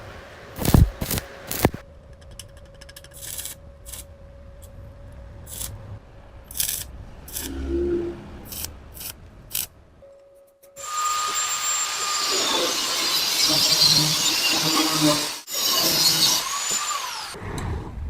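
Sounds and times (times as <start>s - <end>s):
power tool whining: 10.8s - 17.4s.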